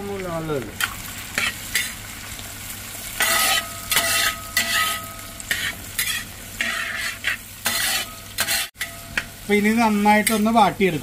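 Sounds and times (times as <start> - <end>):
onions sizzling in hot oil: 0.0 - 11.0
stirring scraping strokes: 3.2 - 9.0.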